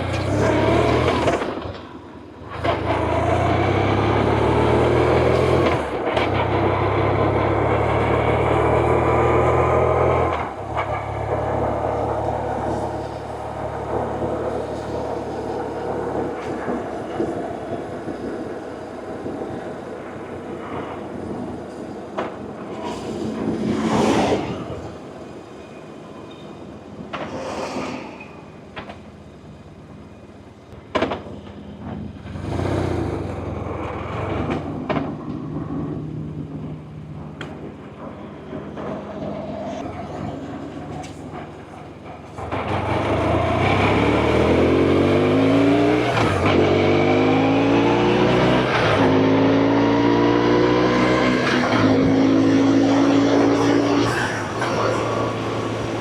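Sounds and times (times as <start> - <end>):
road and traffic noise: 0.0 - 56.0
loud rushing: 42.4 - 56.0.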